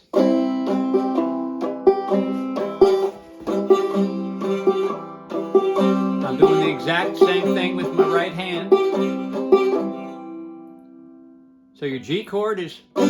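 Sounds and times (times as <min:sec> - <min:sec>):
banjo strumming: 0:00.0 - 0:13.0.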